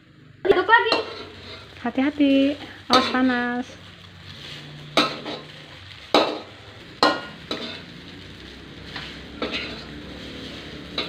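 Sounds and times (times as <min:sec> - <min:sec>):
rice sizzling in a pan: 0:00.1 - 0:11.0
utensil scraping a pan: 0:00.9 - 0:01.8, 0:04.2 - 0:05.6, 0:06.2 - 0:08.0, 0:08.8 - 0:11.0.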